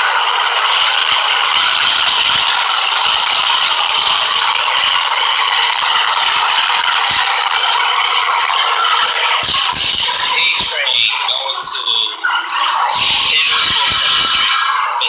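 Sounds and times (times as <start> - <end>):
subway train wheels on rails: 0.0 - 12.0.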